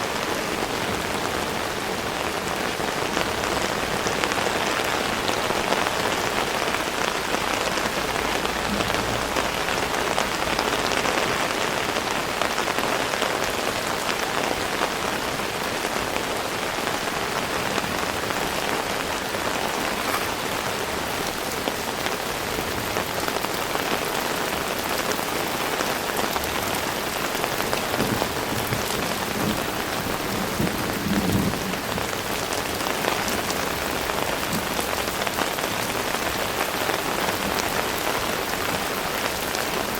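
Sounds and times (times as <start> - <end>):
heavy rain pattering: 0.0 - 39.9
faint low rumble: 8.4 - 10.7.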